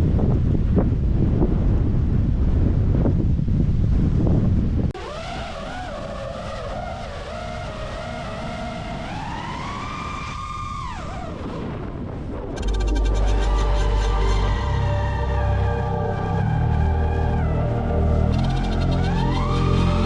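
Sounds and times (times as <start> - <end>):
drone motors whining: 5.0 - 11.4, 12.6 - 20.0
music with deep bass: 12.6 - 20.0.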